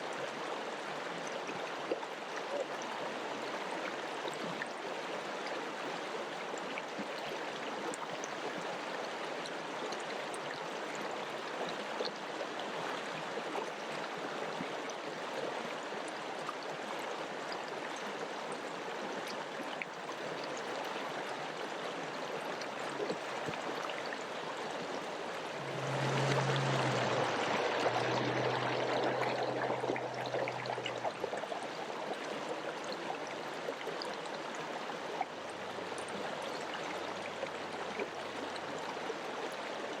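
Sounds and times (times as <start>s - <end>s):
river flowing: 0.0s - 40.0s
low steady hum: 25.4s - 31.8s.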